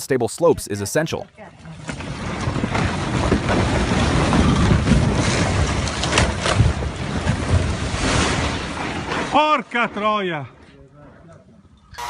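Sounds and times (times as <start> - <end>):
rocks tumbling rumble: 1.7 - 10.2
wind buffeting microphone: 1.8 - 9.3.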